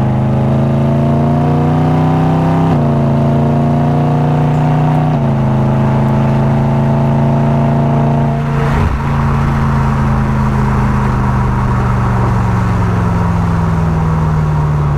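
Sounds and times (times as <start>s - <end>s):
car engine running: 2.7s - 14.9s.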